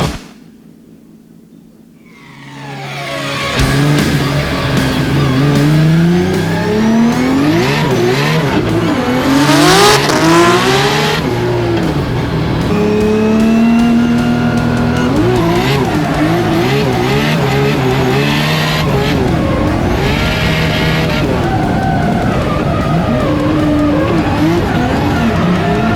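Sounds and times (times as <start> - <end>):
tyres squealing: 2.1 - 25.9
car engine revving hard: 3.6 - 25.9.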